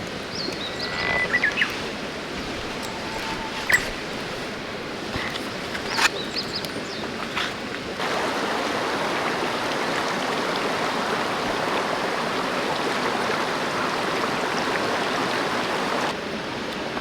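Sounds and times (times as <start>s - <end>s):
stream rushing over rocks: 7.0s - 17.0s.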